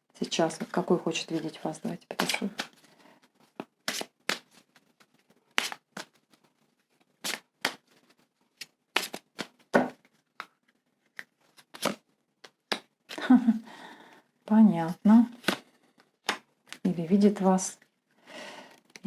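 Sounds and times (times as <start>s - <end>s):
cards being shuffled: 0.5s - 13.2s, 15.4s - 16.9s.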